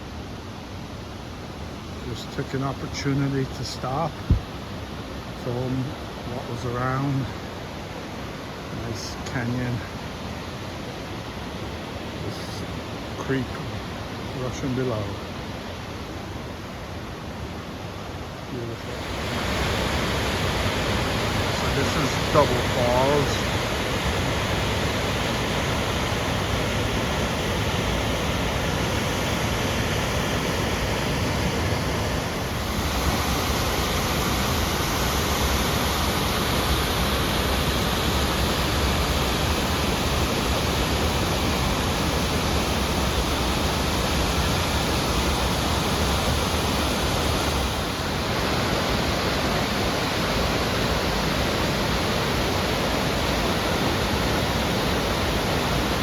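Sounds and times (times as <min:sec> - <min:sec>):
waterfall rushing: 0:18.6 - 0:56.0.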